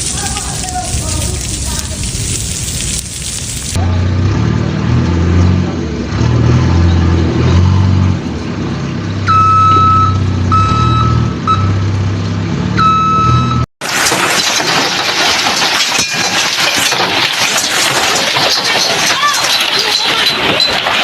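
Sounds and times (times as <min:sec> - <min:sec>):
large vehicle engine humming: 0:03.7 - 0:13.7
electronic warning beeper: 0:09.3 - 0:11.8, 0:12.8 - 0:13.6.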